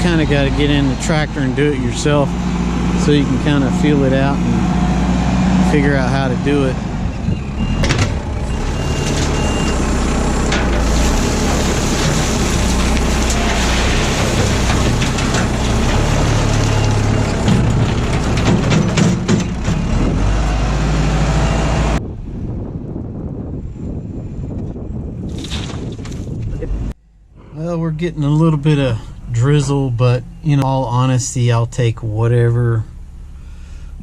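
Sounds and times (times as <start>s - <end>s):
tractor diesel engine working: 0.0s - 25.0s, 26.6s - 34.0s
stones clattering and knocking: 25.3s - 26.4s.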